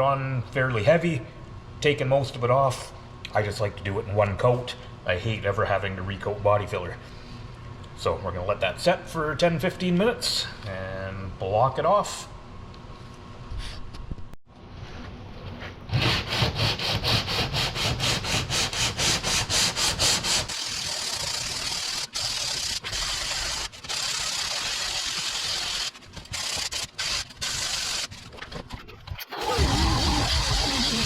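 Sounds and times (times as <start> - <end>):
sandpaper rasping on filler: 15.9 - 31.0.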